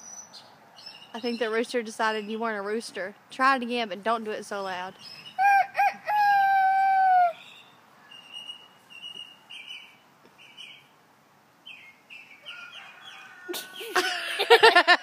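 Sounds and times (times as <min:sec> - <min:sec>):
birds chirping: 0:00.0 - 0:02.9, 0:03.9 - 0:11.0, 0:11.6 - 0:14.6.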